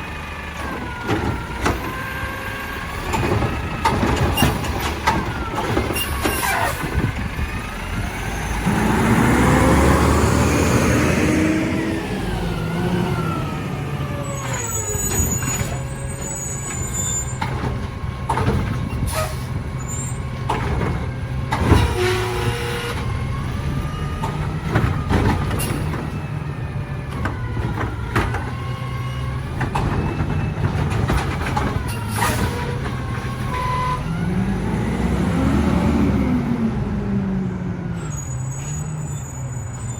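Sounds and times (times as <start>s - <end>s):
garbage truck engine running: 0.0s - 39.9s
gliding squeaks: 3.1s - 6.9s, 14.2s - 20.9s, 29.0s - 34.2s, 38.0s - 39.9s.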